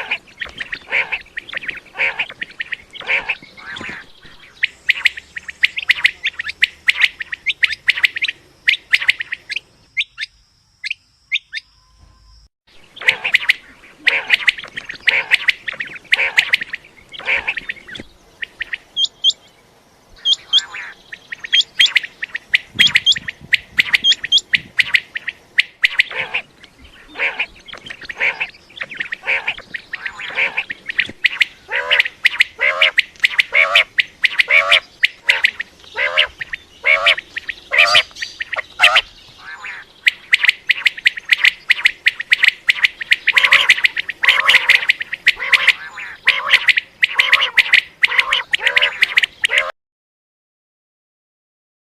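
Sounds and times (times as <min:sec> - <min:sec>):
quail calling: 0:00.0 - 0:11.7, 0:12.8 - 0:19.4, 0:20.2 - 0:49.7.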